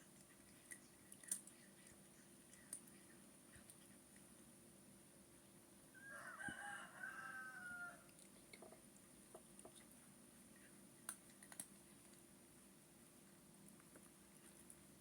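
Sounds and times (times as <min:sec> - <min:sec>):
rooster crowing: 0:06.0 - 0:08.1
faint clicks: 0:11.0 - 0:12.2.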